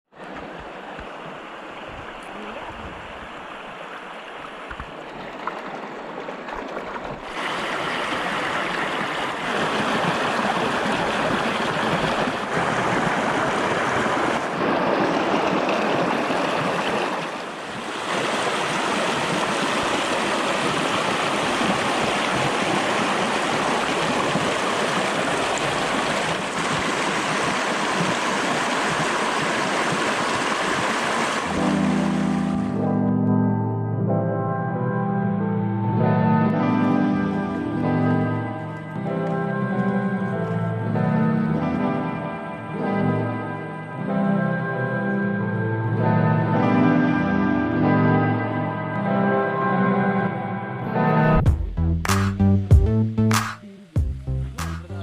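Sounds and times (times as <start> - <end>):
rushing water: 0.1 - 32.8.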